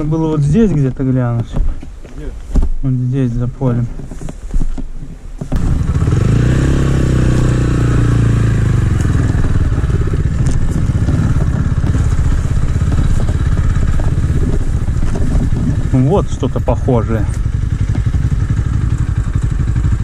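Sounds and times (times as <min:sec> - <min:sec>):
motorcycle engine pulling away: 0:05.5 - 0:20.0.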